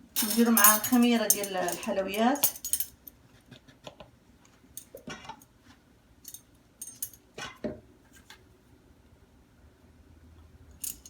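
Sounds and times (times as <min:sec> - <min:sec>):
kitchen utensils clinking: 0:00.0 - 0:03.0.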